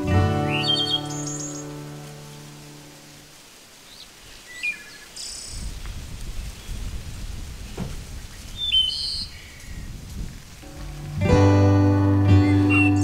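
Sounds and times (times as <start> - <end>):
birds chirping: 0.0 - 5.8, 7.6 - 10.0, 10.6 - 13.0
low rumbling noise: 10.0 - 13.0.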